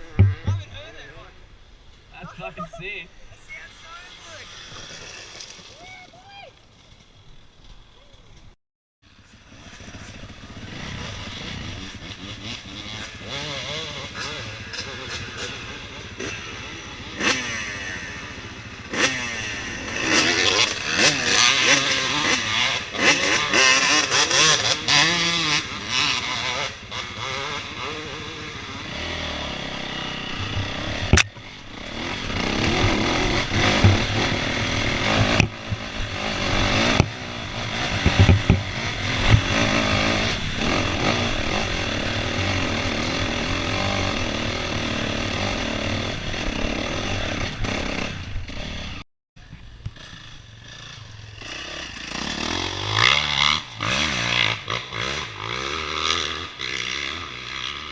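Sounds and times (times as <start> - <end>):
dirt bike engine revving: 0.0 - 1.4, 2.2 - 5.5, 9.1 - 57.9
sharp knock: 0.2 - 0.8.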